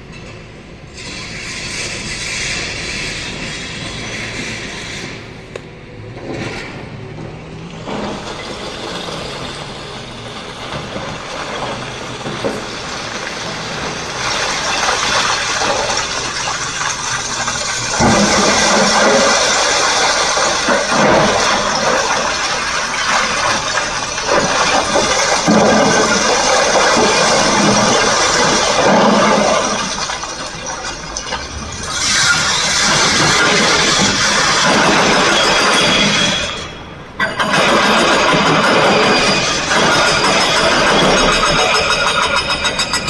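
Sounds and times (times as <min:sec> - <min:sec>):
heavy diesel engine running: 0:00.0 - 0:43.0.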